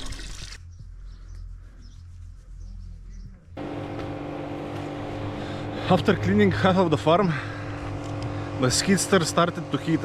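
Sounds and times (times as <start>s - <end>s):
faint bird chirps: 0.6s - 3.5s
steady low hum: 0.6s - 10.0s
engine running steadily: 3.5s - 10.0s.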